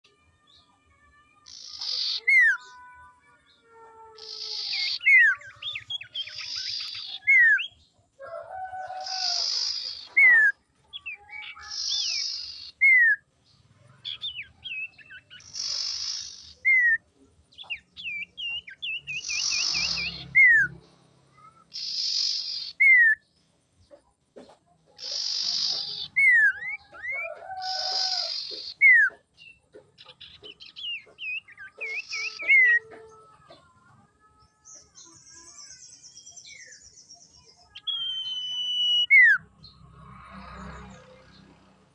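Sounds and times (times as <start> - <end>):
bird calling: 1.5 - 3.1, 4.1 - 13.2, 13.8 - 34.0, 37.6 - 40.9
bird warbled trills: 4.2 - 7.8, 14.0 - 17.0, 21.4 - 23.2, 24.9 - 29.2.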